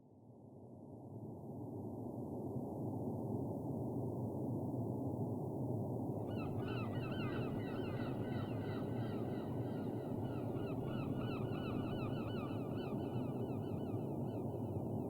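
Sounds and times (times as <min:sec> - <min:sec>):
repeated bird calls: 0:06.3 - 0:14.8.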